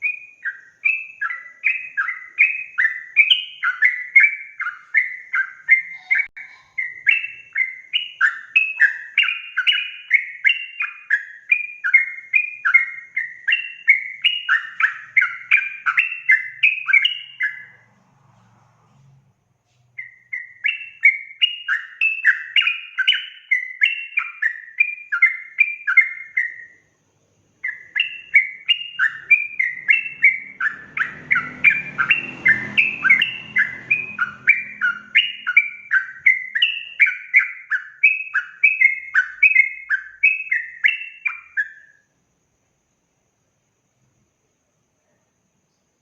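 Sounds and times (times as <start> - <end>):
bird singing whistled notes: 0.0 - 17.9, 19.9 - 42.1
faint low rumble: 17.2 - 20.3.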